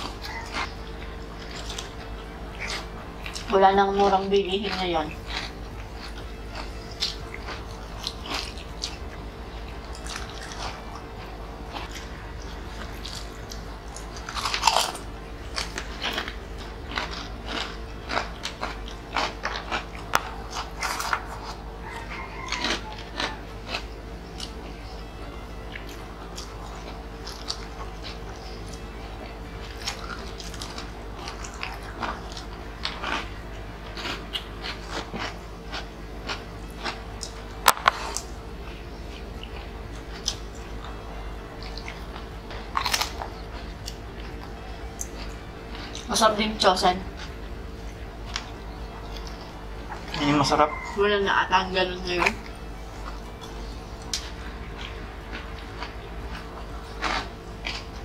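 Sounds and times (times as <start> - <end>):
soft background music: 0.0 - 37.6
crisp crunching and chewing: 0.0 - 46.2, 47.0 - 51.0, 52.2 - 58.0.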